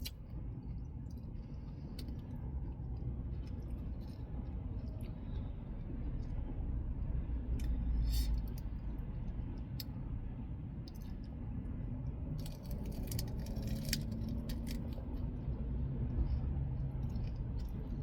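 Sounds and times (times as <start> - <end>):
chewing and crunching lettuce: 0.0 - 6.4, 12.3 - 18.0
steady low rumble: 0.0 - 18.0.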